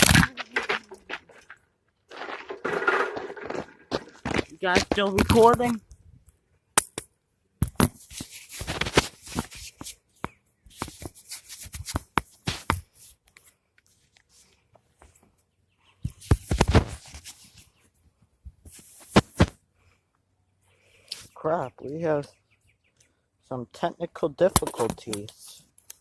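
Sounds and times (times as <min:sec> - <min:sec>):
rustling scraping handling noise: 0:00.0 - 0:05.8, 0:07.7 - 0:15.4, 0:16.1 - 0:19.6.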